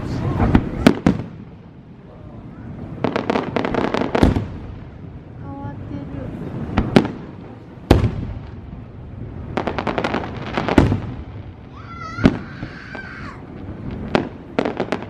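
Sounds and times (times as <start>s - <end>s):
crackling firework pops: 0.0s - 1.4s, 3.0s - 4.8s, 6.7s - 8.8s, 9.5s - 15.0s
fireworks bangs: 0.0s - 15.0s.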